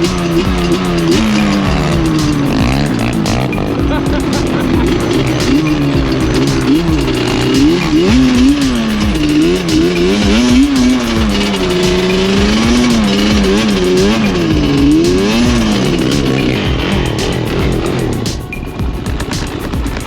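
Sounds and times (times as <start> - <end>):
quad bike engine revving: 0.0 - 20.0.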